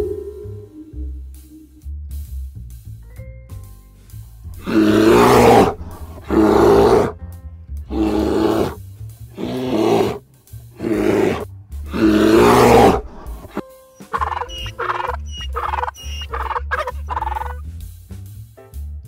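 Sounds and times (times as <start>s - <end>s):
background music with bass: 0.0s - 19.0s
bear roaring and growling: 4.5s - 7.2s, 7.9s - 10.2s, 10.8s - 13.6s.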